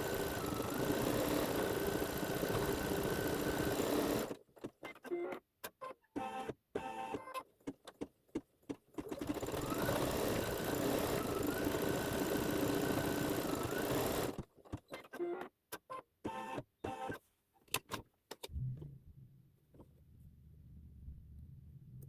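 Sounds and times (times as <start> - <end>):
embroidery machine stitching: 0.0 - 4.7, 9.0 - 14.5.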